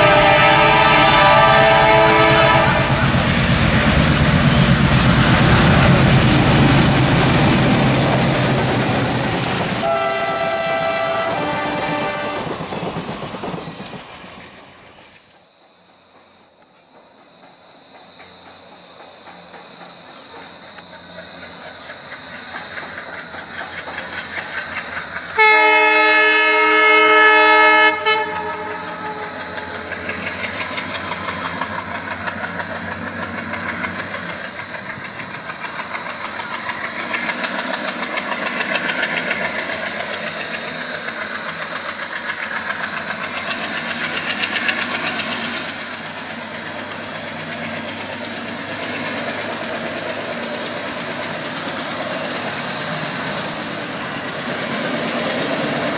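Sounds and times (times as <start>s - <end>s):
locomotive horn blaring: 0.0s - 3.2s, 9.8s - 12.5s, 25.4s - 29.9s
train clattering: 0.0s - 55.9s
diesel engine chugging: 2.8s - 11.0s, 28.3s - 55.9s.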